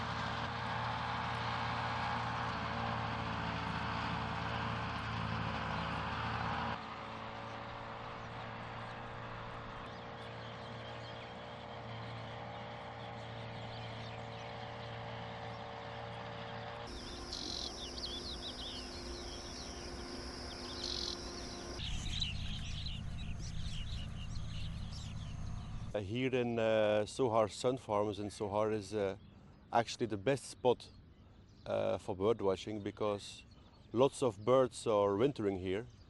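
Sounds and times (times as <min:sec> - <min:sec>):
motor drone: 0:00.0 - 0:26.0
small birds chirping: 0:05.5 - 0:36.0.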